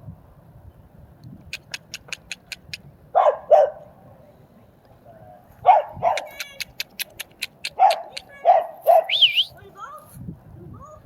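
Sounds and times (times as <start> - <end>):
quick sharp clicks: 1.5 - 2.8, 6.2 - 9.5
dog barking: 3.2 - 3.9, 5.6 - 6.4, 7.7 - 9.3.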